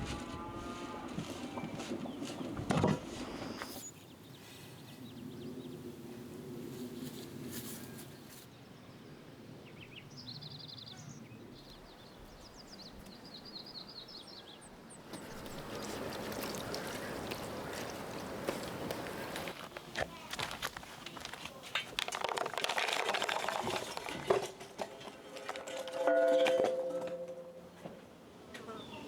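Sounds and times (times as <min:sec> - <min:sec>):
small birds chirping: 0:01.6 - 0:05.9, 0:07.0 - 0:21.7
rustling: 0:15.1 - 0:27.6.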